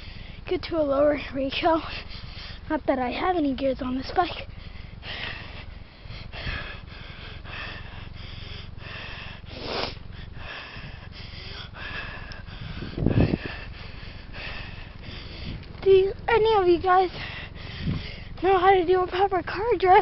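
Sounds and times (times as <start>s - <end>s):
person breathing hard: 0.0s - 0.4s, 1.8s - 2.7s, 4.4s - 15.7s, 17.0s - 18.4s.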